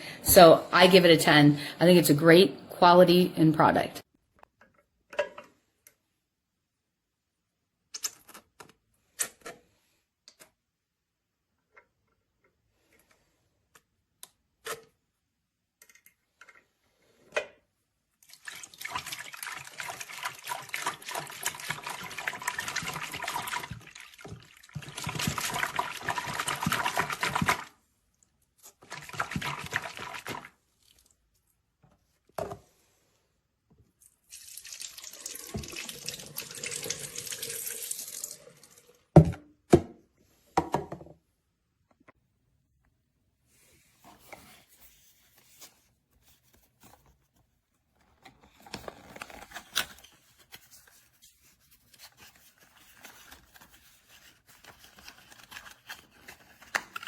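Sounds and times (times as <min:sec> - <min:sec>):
tap water running into sink: 0:34.3 - 0:39.0.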